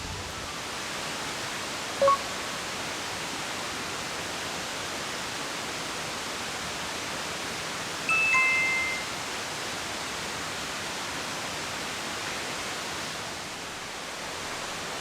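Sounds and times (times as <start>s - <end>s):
high-pitched blip: 2.0s - 2.3s.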